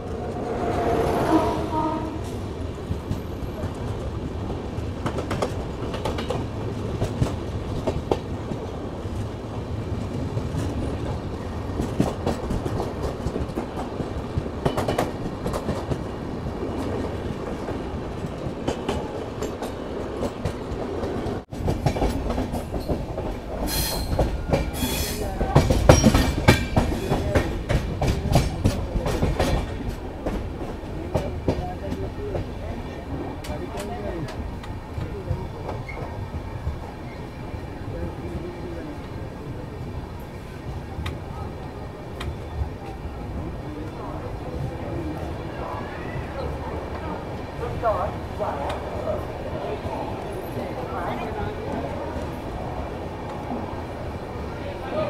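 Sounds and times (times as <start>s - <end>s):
passenger train rumble: 0.0s - 55.0s
wheels clacking over rail joints: 16.7s - 32.6s.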